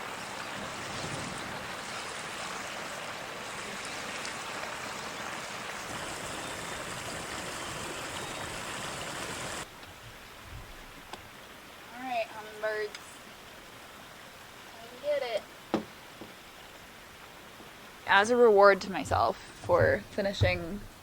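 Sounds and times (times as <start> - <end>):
pressure washer spraying water: 5.9 - 9.6.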